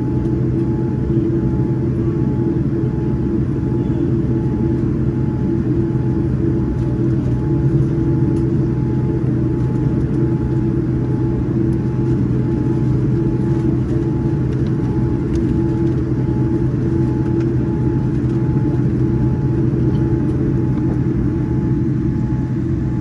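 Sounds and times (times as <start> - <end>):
airliner cabin engine rumble: 0.0 - 23.0
faint pulsing high tone: 3.2 - 6.6.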